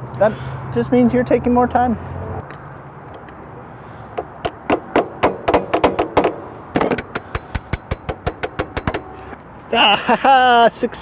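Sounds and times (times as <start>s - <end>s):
tool tapping on metal: 4.2s - 9.2s.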